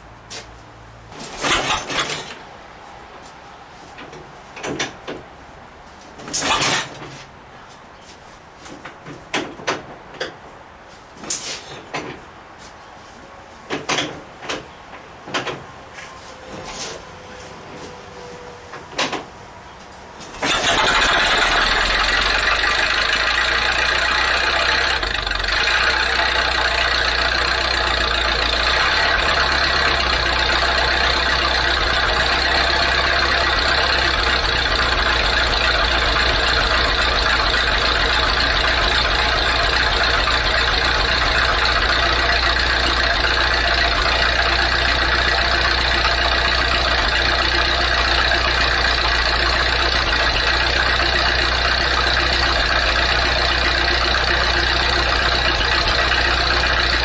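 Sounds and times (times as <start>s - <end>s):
car engine running: 20.4s - 57.0s.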